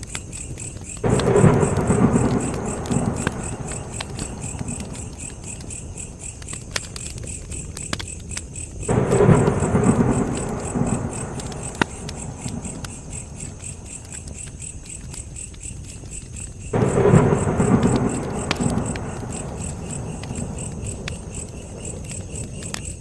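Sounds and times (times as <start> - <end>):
campfire crackling and popping: 0.0 - 23.0
insects chirping: 0.0 - 23.0
low rumbling surge: 8.9 - 13.4, 16.8 - 20.3.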